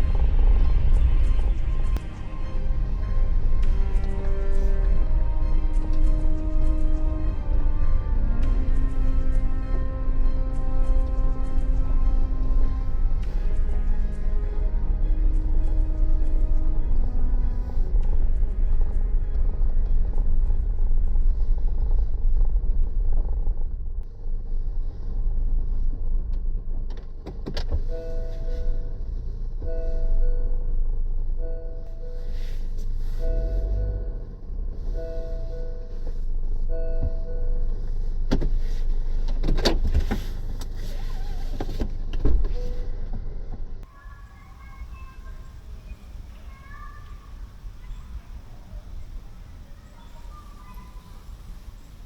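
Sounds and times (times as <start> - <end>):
car rumbling on road: 0.0 - 44.2
faint high calls: 43.8 - 52.0.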